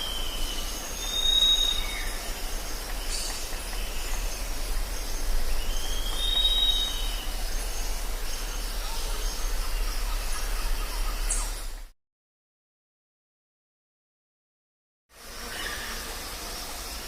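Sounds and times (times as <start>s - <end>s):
whistled bird call: 0.0s - 2.3s, 5.6s - 11.8s
insects chorus: 0.0s - 11.9s, 15.2s - 17.0s
low hum: 0.0s - 11.9s.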